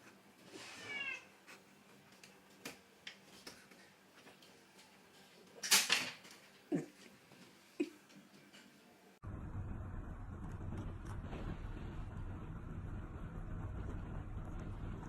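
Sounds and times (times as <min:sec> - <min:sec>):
cat meowing: 0:00.6 - 0:01.3
loud noise burst: 0:09.2 - 0:15.0.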